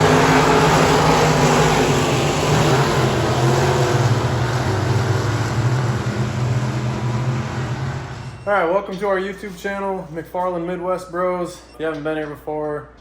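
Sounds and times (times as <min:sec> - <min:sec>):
vehicle engine running: 0:00.0 - 0:08.5.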